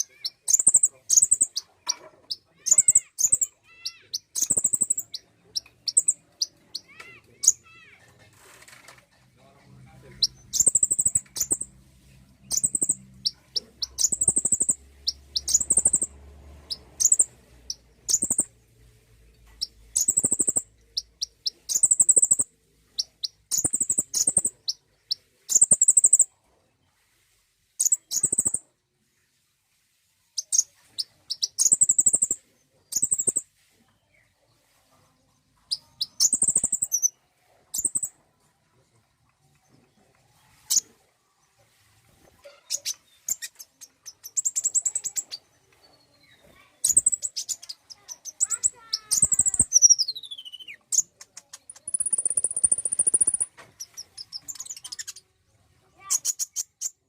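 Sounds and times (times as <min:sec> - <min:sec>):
sunbird chirping song: 0:00.0 - 0:07.7, 0:10.0 - 0:11.7, 0:12.5 - 0:18.6, 0:19.3 - 0:26.3, 0:30.4 - 0:33.4, 0:42.4 - 0:55.3.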